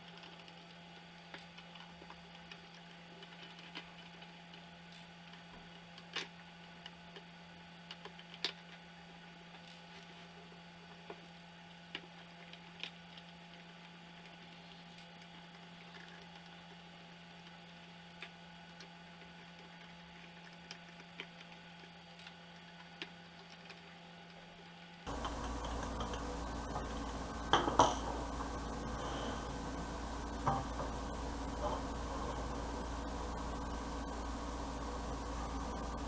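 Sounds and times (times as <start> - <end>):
deeper background hum: 25.1 - 36.0
faint clicks and taps: 25.1 - 36.0
steady low hum: 25.1 - 36.0.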